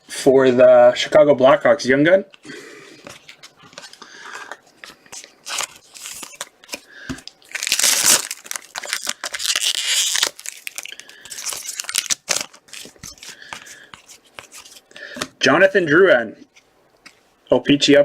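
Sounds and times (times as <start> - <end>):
plastic packaging crinkling: 3.2 - 14.9.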